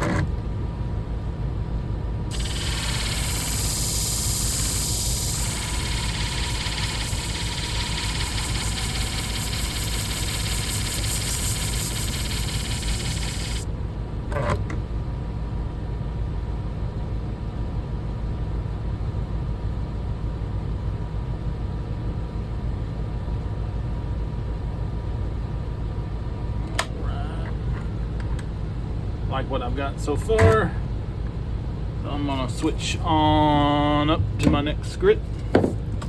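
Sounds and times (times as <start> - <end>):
blade grinding on abrasive disc: 2.3 - 13.6
sharpening machine motor humming: 2.3 - 13.6.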